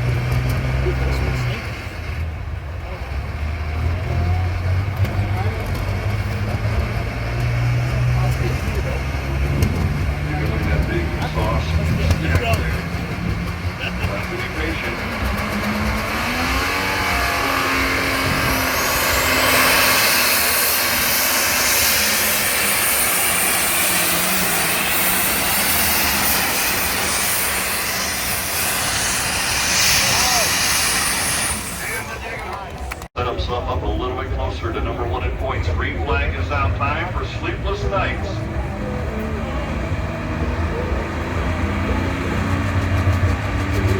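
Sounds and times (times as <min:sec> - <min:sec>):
tractor engine at high revs: 0:00.0 - 0:33.2, 0:34.7 - 0:43.9
high whine rising in pitch: 0:10.4 - 0:32.3.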